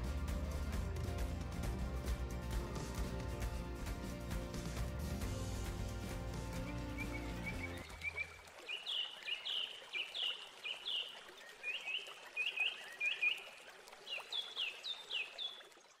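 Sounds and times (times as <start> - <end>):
trickling water hiss: 0.0 - 16.0
bird chirping: 6.6 - 13.5.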